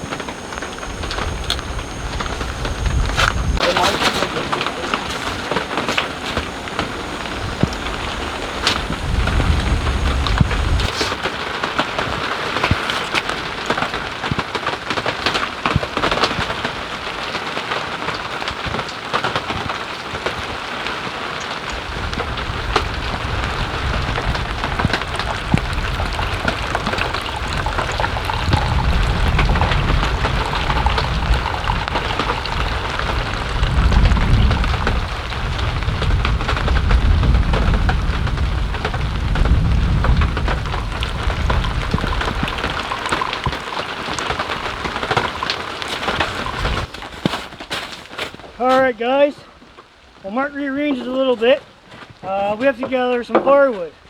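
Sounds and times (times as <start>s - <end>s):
steady rain: 0.0s - 54.0s
low rumble: 21.8s - 42.9s.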